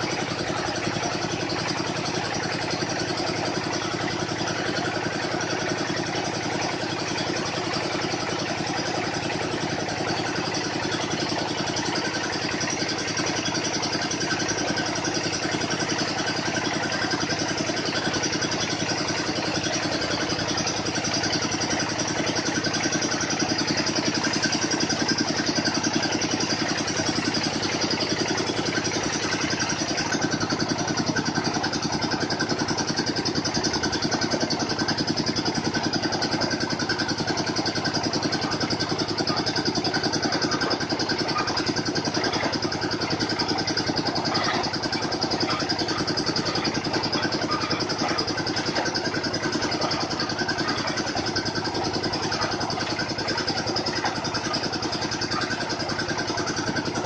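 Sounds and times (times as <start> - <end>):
drilling machine engine running: 0.0 - 57.0.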